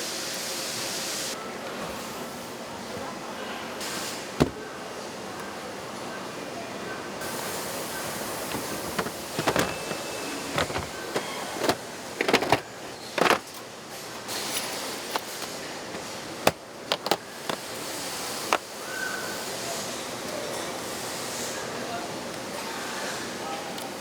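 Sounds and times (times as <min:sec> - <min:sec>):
factory background hum: 0:00.0 - 0:24.0
tool parts clicking and knocking: 0:04.4 - 0:04.6, 0:08.4 - 0:13.6, 0:15.1 - 0:17.7.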